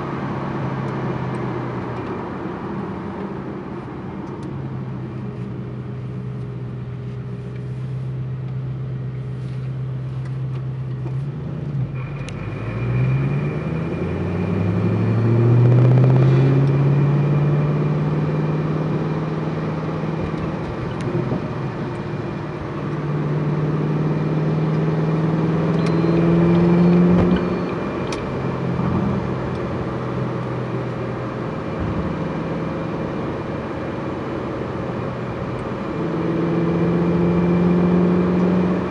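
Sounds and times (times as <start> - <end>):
car engine revving: 11.7 - 38.9.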